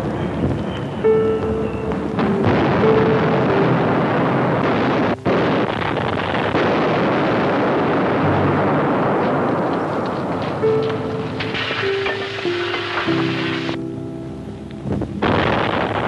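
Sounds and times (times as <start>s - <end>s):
bomb explosions: 0.0s - 13.8s, 14.8s - 16.0s
anti-aircraft gunfire: 15.2s - 16.0s.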